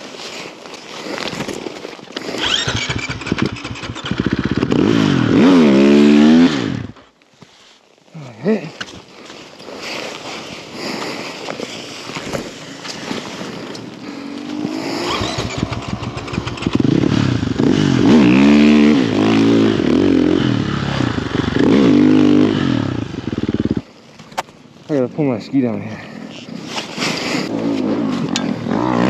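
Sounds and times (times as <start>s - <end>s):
dirt bike engine revving: 2.2s - 7.0s, 14.0s - 23.9s, 27.2s - 29.0s.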